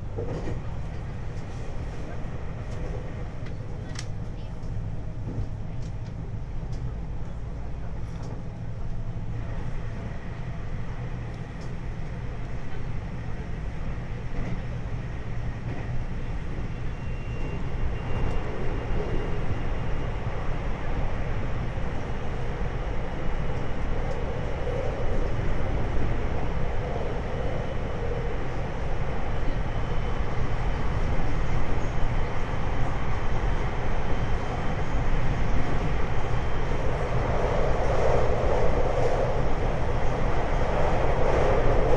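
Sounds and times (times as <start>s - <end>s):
train running rumble: 0.0s - 41.9s.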